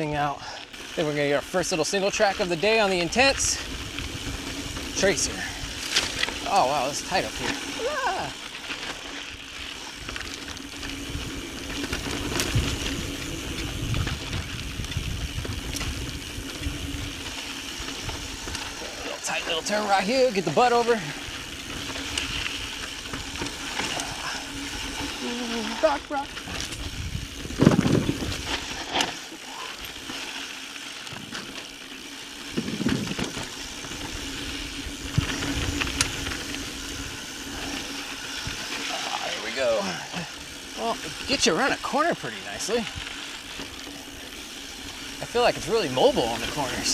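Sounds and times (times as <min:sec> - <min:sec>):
bike clicks and rattles: 0:00.0 - 0:46.9
bike tyres rolling on rocky ground: 0:00.0 - 0:46.9
wind on microphone: 0:26.7 - 0:28.5.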